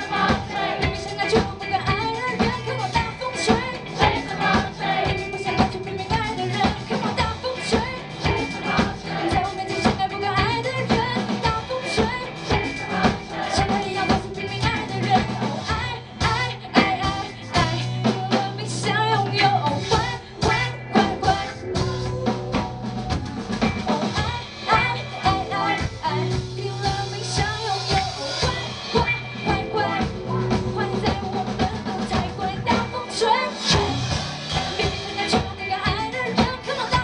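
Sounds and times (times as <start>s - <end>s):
drum kit beat: 0.0s - 37.0s
live pop-rock band playing: 0.0s - 37.0s
bass long low notes: 12.2s - 33.0s.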